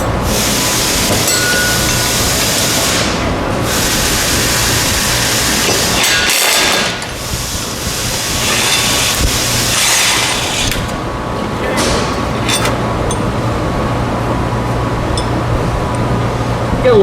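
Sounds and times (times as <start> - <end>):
steady low hum: 0.0 - 17.0
impact wrench bursts: 0.2 - 13.3.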